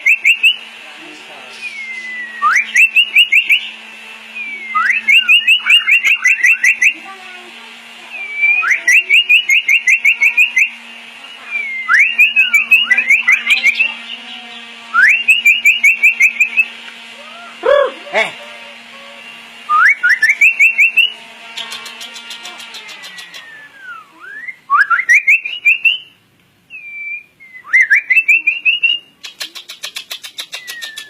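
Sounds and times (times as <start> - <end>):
bird singing whistled phrases: 0.0 - 0.6, 1.6 - 3.7, 4.4 - 7.0, 8.1 - 10.8, 11.4 - 16.7, 19.7 - 21.1, 22.9 - 31.0.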